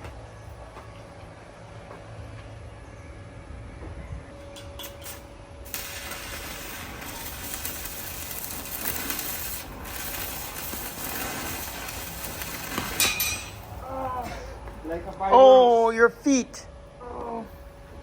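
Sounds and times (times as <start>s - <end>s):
welding arc crackling: 4.8s - 13.9s.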